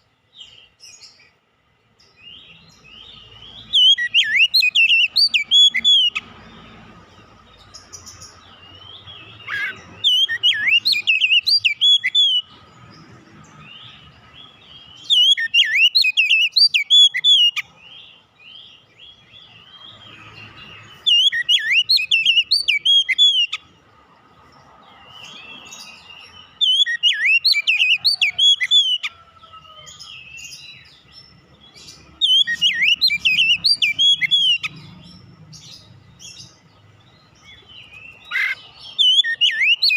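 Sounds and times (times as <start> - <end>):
bird singing whistled phrases: 2.2 - 6.2, 9.4 - 12.5, 14.9 - 17.6, 21.0 - 23.6, 26.4 - 29.3, 32.1 - 34.8, 37.8 - 39.9.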